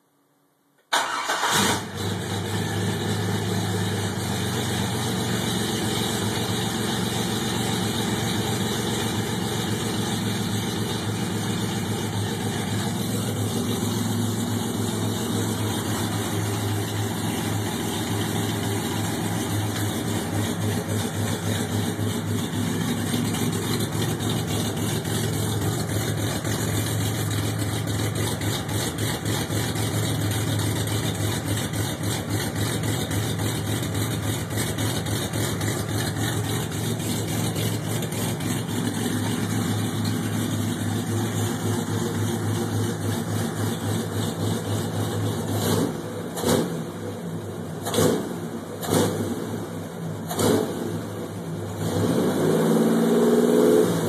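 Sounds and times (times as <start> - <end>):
car engine idling: 1.0 - 51.9.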